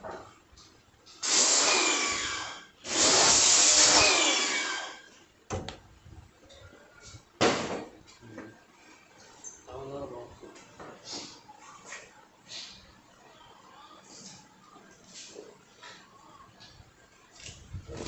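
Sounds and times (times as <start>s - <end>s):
power tool running: 1.2s - 5.0s.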